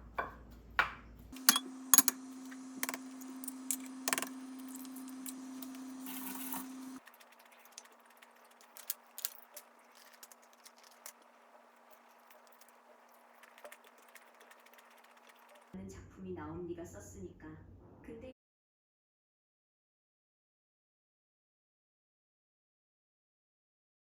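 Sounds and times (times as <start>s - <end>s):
steady low hum: 1.4s - 7.0s.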